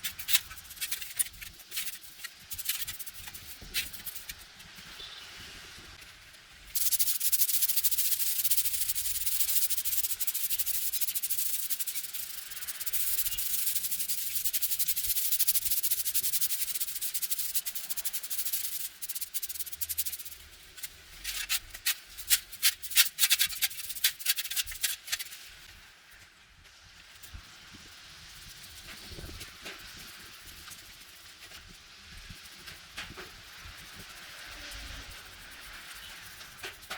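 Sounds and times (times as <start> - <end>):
rubbing strokes on hard surface: 0.0 - 4.5, 6.8 - 25.5.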